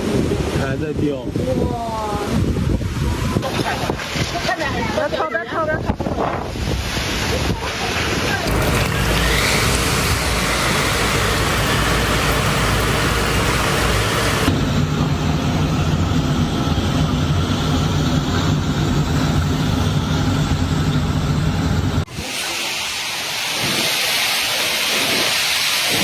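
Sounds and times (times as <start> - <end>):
gale wind on microphone: 0.0 - 8.6.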